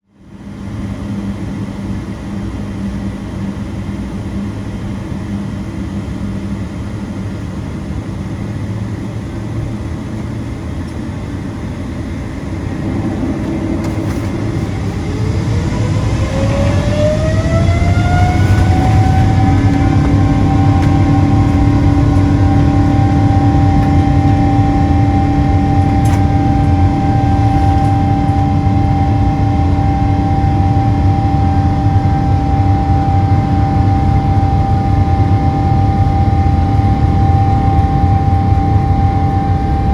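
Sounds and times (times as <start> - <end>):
jet engine whine rising: 0.3 - 39.9
jet engines rumbling: 0.3 - 39.9.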